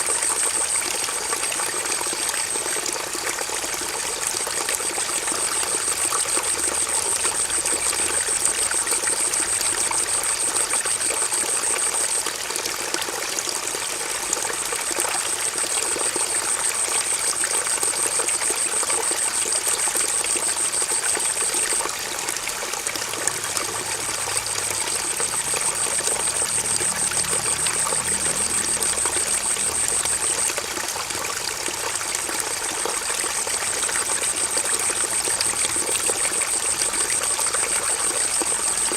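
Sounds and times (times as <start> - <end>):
stream water trickling: 0.0 - 38.9
high-pitched trill: 24.4 - 30.6.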